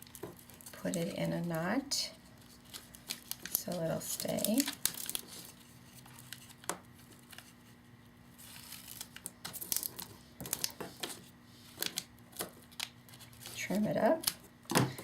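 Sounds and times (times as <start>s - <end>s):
cellophane bag crinkling: 2.3s - 7.4s, 8.4s - 14.4s.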